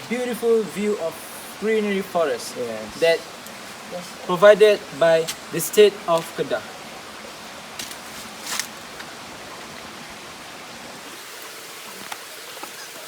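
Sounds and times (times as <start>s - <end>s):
stream water rushing: 0.0s - 13.0s
faint short rustles: 7.8s - 9.1s.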